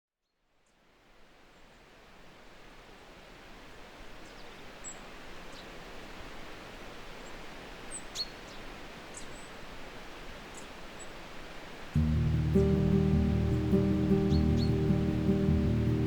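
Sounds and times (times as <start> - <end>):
steady outdoor hiss: 0.3 - 16.0
bird chirps and calls: 12.0 - 16.0.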